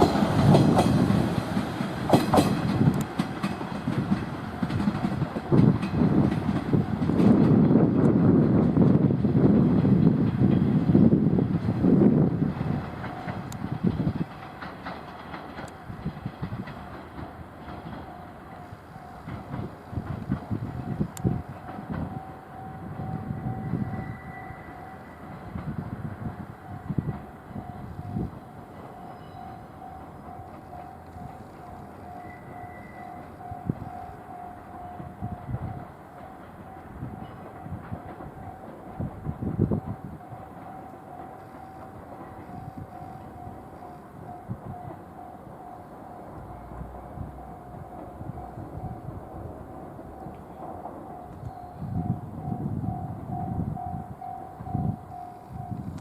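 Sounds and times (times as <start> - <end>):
railcar low rumble: 0.0 - 56.0
train wheels clacking on rail joints: 0.0 - 56.0
steady tone beeping: 51.1 - 56.0.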